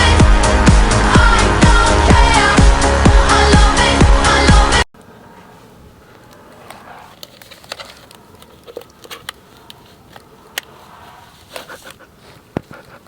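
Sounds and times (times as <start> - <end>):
low room noise: 5.0 - 13.0
faint rustling: 5.2 - 13.0.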